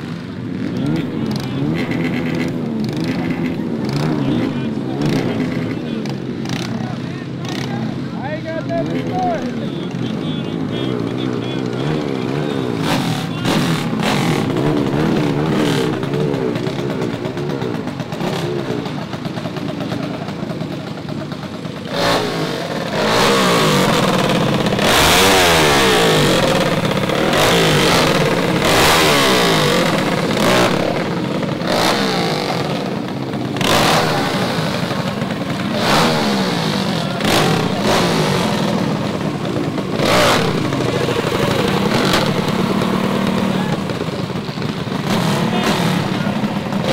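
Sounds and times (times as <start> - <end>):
mini bike engine revving: 0.0 - 46.9.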